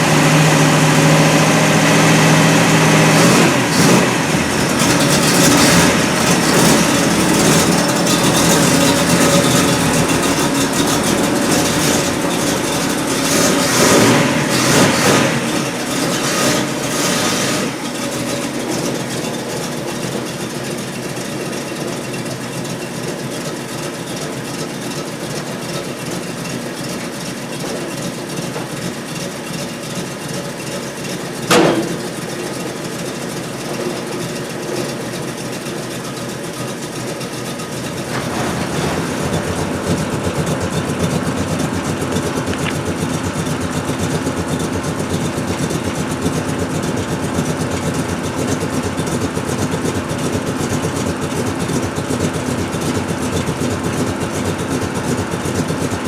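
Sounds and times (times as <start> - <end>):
loud engine burst: 0.0 - 19.0, 31.5 - 32.5, 37.9 - 43.8
vehicle engine running: 0.0 - 56.0.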